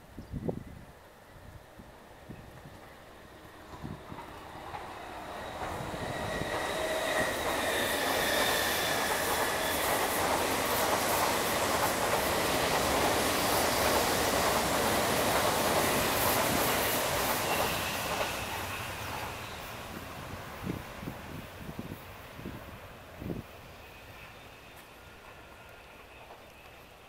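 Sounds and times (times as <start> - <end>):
train wheels rushing on rail: 1.7 - 27.0
high wheel squeal: 5.0 - 10.2, 17.3 - 19.8.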